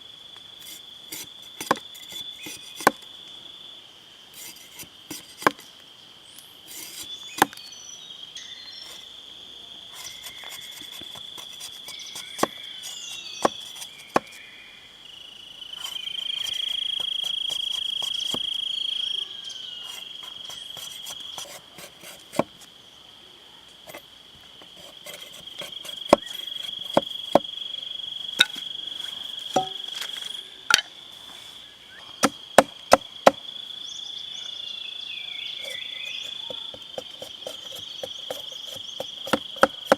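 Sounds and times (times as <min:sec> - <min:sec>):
insects droning: 0:00.0 - 0:39.9
sharp knocks: 0:29.5 - 0:29.8.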